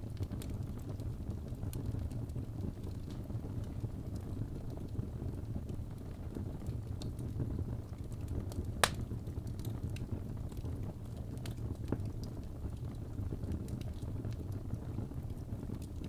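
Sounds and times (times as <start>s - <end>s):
fire crackling in a fireplace: 0.0s - 16.0s
sharp loud crack of fire: 8.6s - 9.7s.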